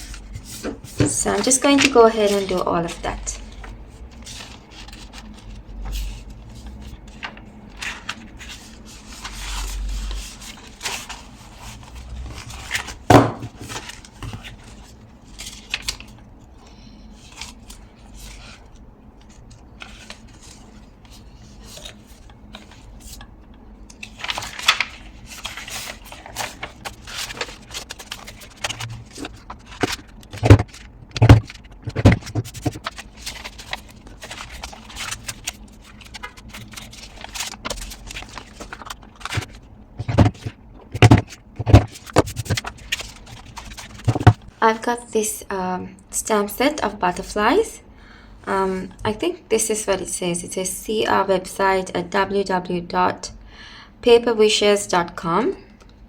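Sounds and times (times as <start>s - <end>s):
paper rustling and scraping: 0.0s - 44.6s
heavy thumps: 30.3s - 32.8s.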